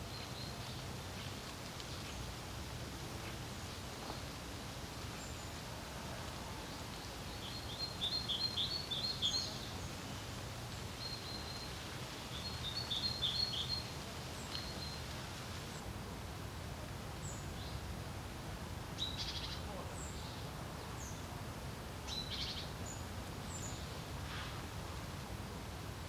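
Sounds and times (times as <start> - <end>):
low rumble of wind: 0.0 - 26.0.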